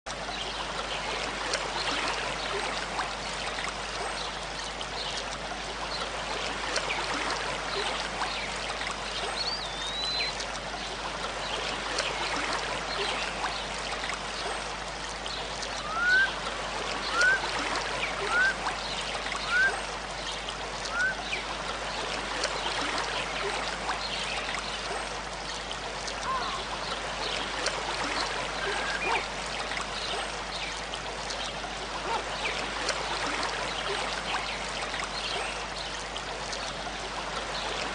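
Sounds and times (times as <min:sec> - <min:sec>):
river rushing: 0:14.9 - 0:23.9
short rising whistled calls: 0:15.8 - 0:16.4, 0:17.1 - 0:17.4, 0:18.2 - 0:18.6, 0:19.4 - 0:19.8, 0:20.9 - 0:21.2.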